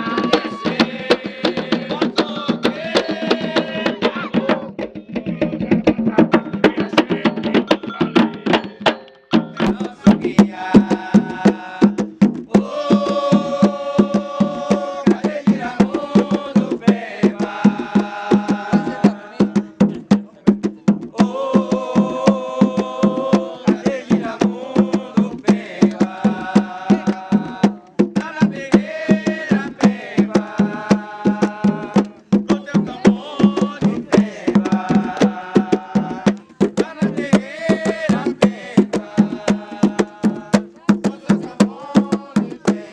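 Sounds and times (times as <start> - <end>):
person chanting: 0.0 - 8.5, 9.6 - 20.0
hand drum beat: 0.0 - 42.9.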